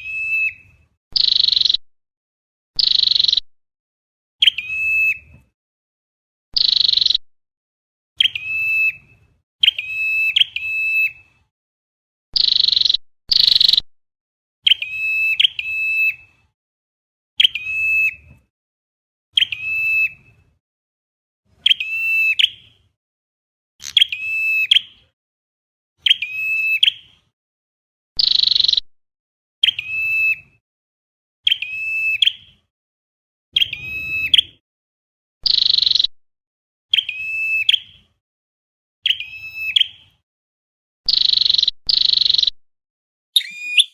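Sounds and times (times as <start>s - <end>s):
bird call notes: 43.4s - 43.9s.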